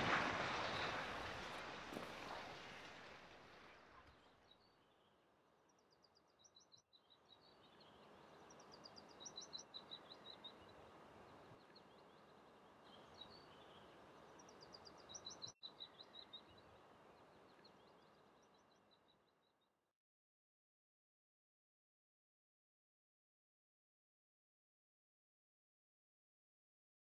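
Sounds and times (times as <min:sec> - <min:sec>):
soft outdoor hiss: 0:00.0 - 0:19.7.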